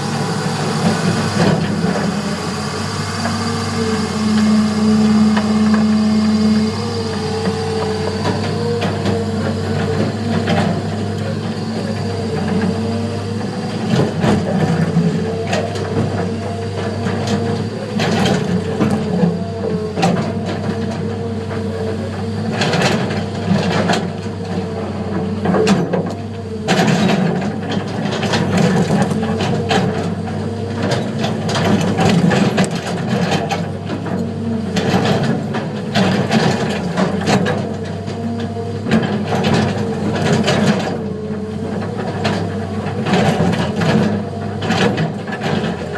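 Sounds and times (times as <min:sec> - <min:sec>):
diesel earthmover running: 0:00.0 - 0:45.9
excavator bucket scraping rock: 0:24.9 - 0:45.9.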